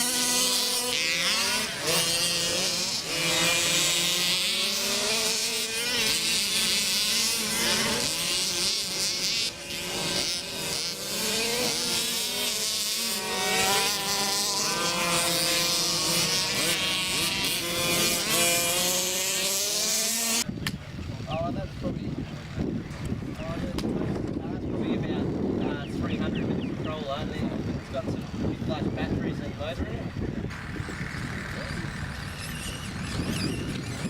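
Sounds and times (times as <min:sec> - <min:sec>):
small engines revving: 0:00.0 - 0:34.0.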